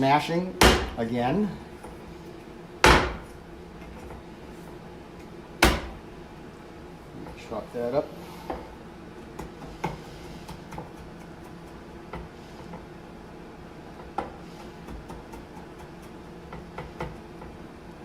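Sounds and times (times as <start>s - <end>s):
steady low hum: 0.0s - 18.0s
knife chopping on cutting board: 2.8s - 3.3s, 5.6s - 6.0s, 9.4s - 12.3s, 14.0s - 17.2s.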